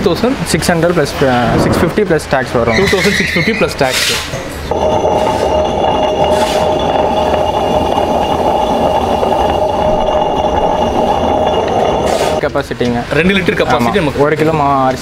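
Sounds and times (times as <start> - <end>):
wet grinder motor whirring: 4.7 - 12.4.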